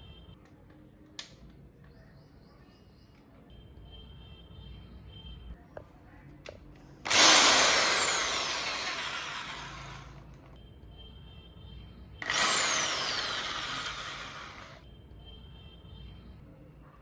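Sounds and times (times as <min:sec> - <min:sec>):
electric drill whining: 0:07.1 - 0:10.2, 0:12.2 - 0:14.8.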